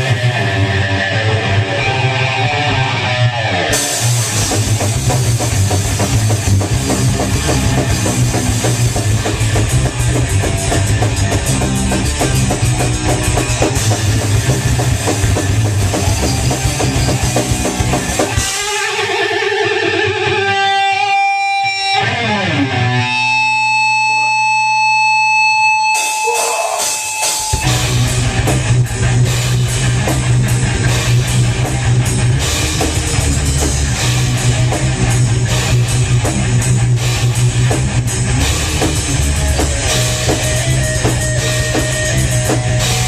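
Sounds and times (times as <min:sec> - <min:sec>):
lone electric guitar notes: 0:00.0 - 0:04.5, 0:16.0 - 0:29.4
thrash band playing: 0:00.0 - 0:43.0.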